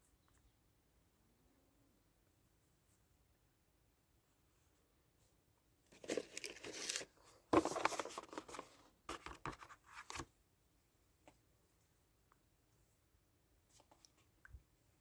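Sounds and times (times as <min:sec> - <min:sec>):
crinkling and rustling packaging: 0:05.9 - 0:10.3.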